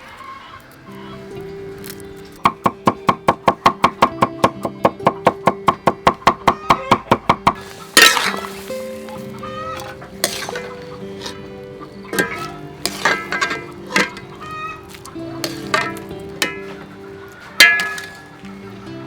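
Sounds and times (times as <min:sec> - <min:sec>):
background music: 0:00.0 - 0:19.0
chickens clucking: 0:00.0 - 0:19.0.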